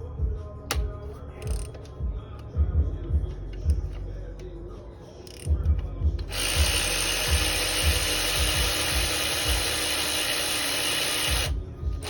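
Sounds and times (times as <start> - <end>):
ratchet wrench rattling: 1.4 - 2.0, 5.2 - 11.6.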